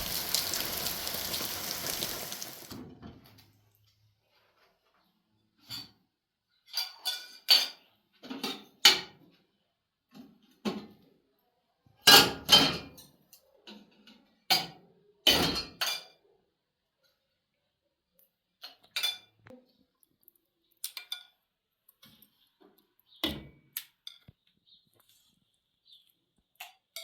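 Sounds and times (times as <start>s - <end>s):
dishes and utensils clattering: 6.7s - 9.2s, 12.1s - 16.3s.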